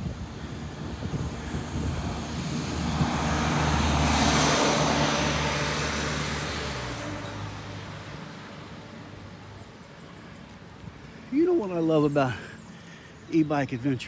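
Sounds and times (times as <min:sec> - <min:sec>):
motor vehicle passing by: 0:00.0 - 0:09.9.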